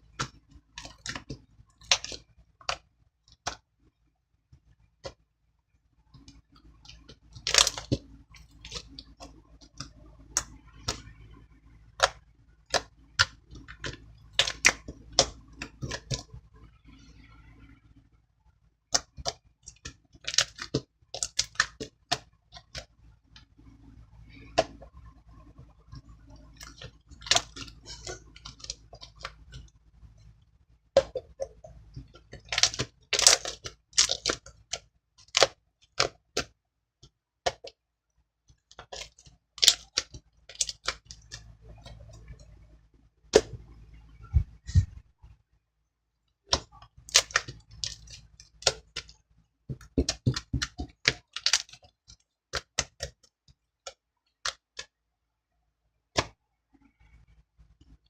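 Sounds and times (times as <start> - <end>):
slime clicking and popping: 6.2 - 11.1, 11.9 - 16.3, 18.9 - 22.9, 31.0 - 36.5, 38.8 - 41.5, 46.5 - 49.2, 49.8 - 53.2.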